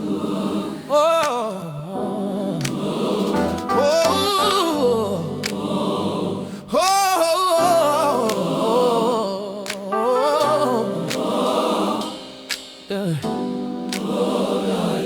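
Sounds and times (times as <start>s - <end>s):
gospel choir singing: 0.0s - 15.0s
warm keys: 1.9s - 6.9s.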